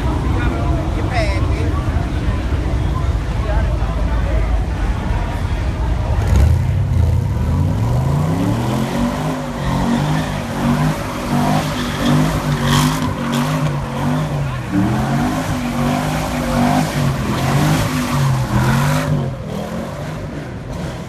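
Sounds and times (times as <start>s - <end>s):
car engine revving: 4.6s - 21.0s.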